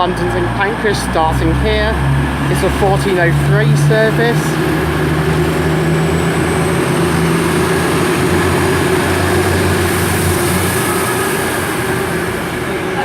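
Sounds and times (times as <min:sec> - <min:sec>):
train diesel engines humming: 0:00.0 - 0:13.0.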